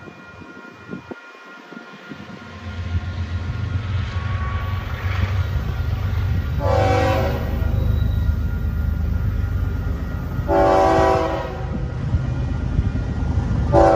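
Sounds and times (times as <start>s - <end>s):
diesel locomotive engine rumble: 0.0s - 13.9s
train horn blast: 4.1s - 8.4s, 10.4s - 12.0s.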